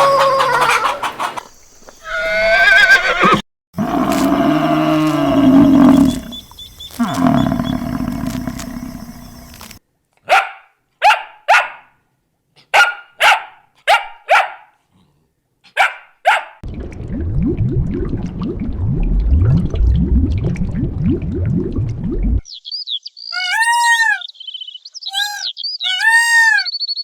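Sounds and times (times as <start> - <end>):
dog barking: 10.2 - 12.0, 12.6 - 14.8, 15.7 - 16.6.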